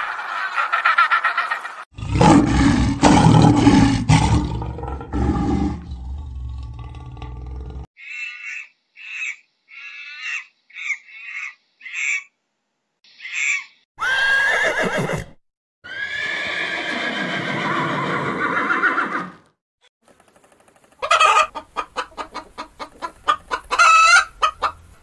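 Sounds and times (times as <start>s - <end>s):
high-pitched monkey calls: 8.0s - 12.4s, 13.1s - 14.3s
horses neighing: 14.0s - 19.4s.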